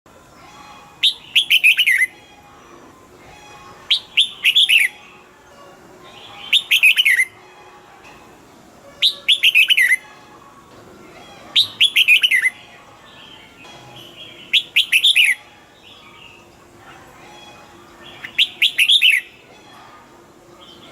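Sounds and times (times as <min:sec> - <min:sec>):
bulbul singing: 0:00.4 - 0:05.4, 0:06.0 - 0:07.4, 0:09.0 - 0:10.2, 0:11.4 - 0:20.0.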